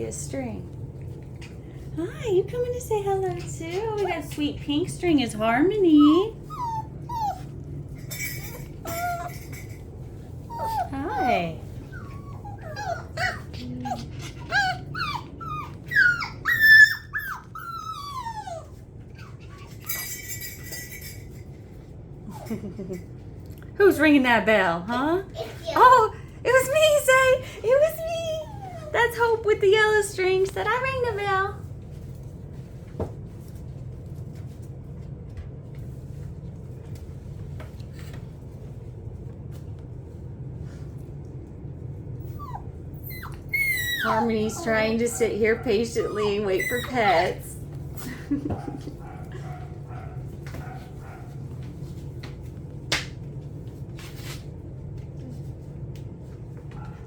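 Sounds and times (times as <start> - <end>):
low mechanical hum: 0.0 - 57.0
puppies whining: 5.8 - 21.2, 27.8 - 29.4, 42.2 - 51.2
small bell jingling: 8.0 - 9.8, 19.8 - 21.5.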